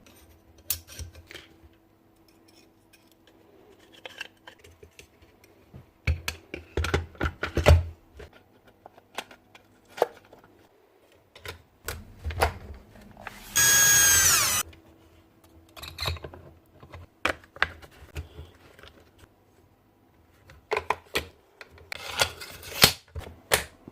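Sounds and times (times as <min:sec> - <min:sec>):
small motor whining: 0:13.5 - 0:14.6.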